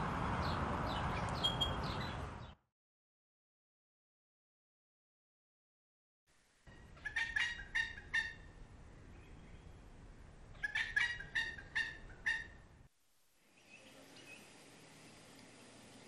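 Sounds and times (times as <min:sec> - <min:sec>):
low background noise: 0:06.3 - 0:16.0.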